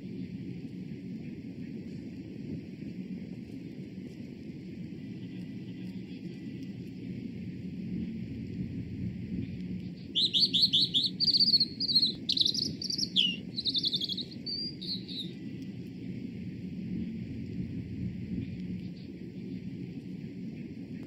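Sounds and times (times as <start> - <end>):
steady low rumble: 0.0 - 21.0
songbird singing trills: 10.1 - 15.4.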